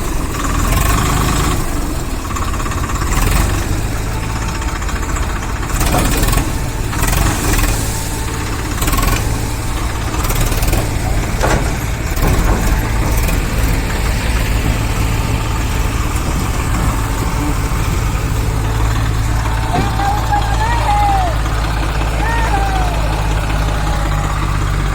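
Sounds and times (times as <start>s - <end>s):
diesel engine running: 0.0s - 24.9s
short clattering knocks: 10.2s - 20.4s.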